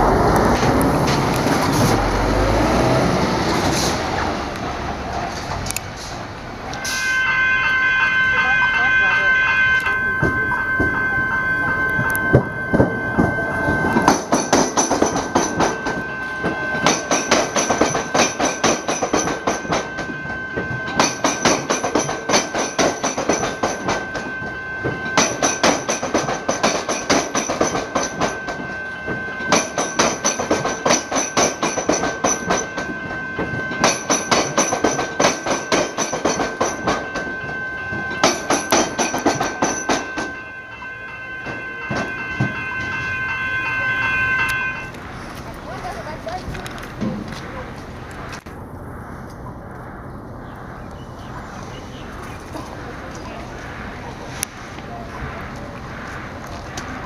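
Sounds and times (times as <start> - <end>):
train wheels clattering over crossing: 0.0 - 48.4
steady high whine: 6.7 - 57.0.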